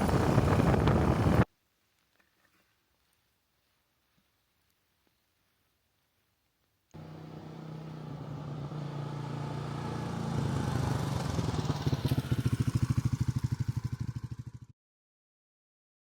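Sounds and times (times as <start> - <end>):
motorcycle engine running: 7.0 - 14.7.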